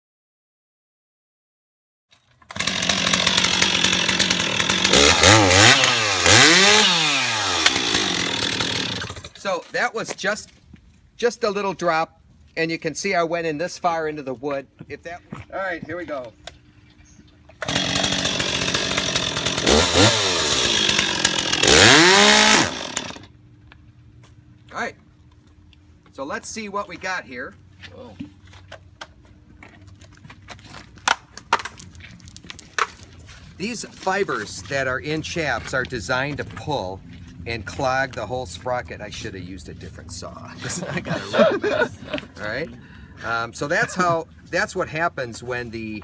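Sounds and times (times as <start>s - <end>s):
chainsaw running and revving: 2.5s - 9.4s, 17.6s - 23.3s.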